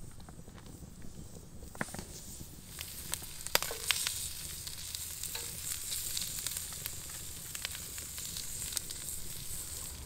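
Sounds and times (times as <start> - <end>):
hot dogs sizzling on a griddle: 0.0 - 10.0
wood fire crackling: 0.0 - 10.0
metal tongs clicking on griddle: 3.5 - 6.2.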